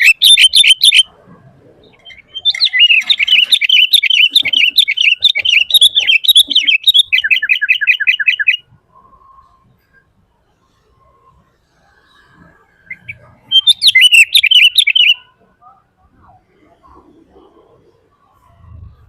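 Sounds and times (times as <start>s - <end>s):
bird singing chattering song: 0.0s - 1.1s, 1.8s - 10.0s, 12.8s - 15.8s.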